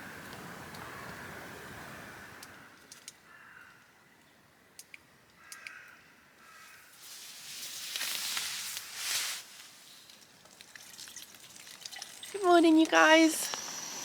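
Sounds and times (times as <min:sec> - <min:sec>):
faint bird calls: 0:00.0 - 0:04.3
light clicks: 0:04.8 - 0:05.8.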